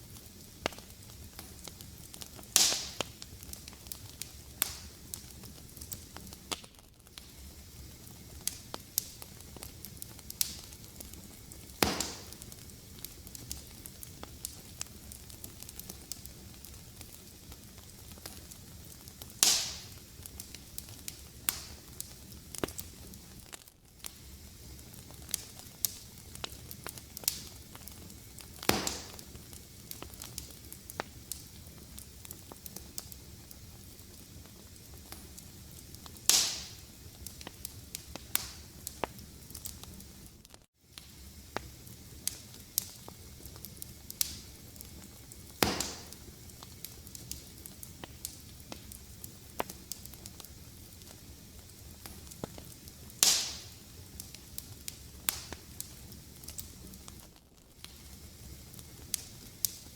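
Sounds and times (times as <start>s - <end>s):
fire pops: 0.0s - 59.9s
fireplace fire crackling: 0.0s - 59.9s.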